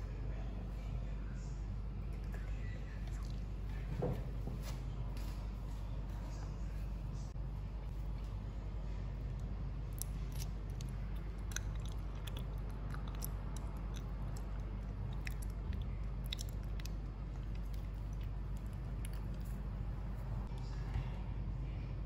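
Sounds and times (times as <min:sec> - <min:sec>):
steady low hum: 0:00.0 - 0:22.0
jelly being chewed crunching: 0:02.1 - 0:03.8, 0:09.2 - 0:20.6.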